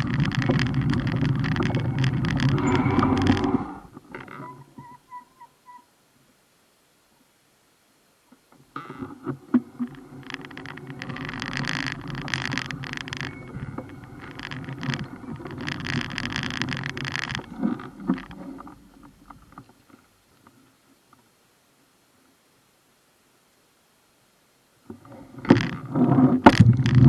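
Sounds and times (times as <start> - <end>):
bicycle riding rattle: 0.0 - 4.3, 9.7 - 19.6.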